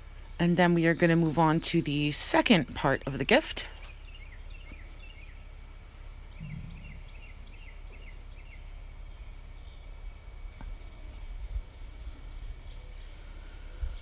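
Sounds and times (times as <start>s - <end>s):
steady low hum: 0.0s - 14.0s
faint bird chirping: 3.7s - 14.0s.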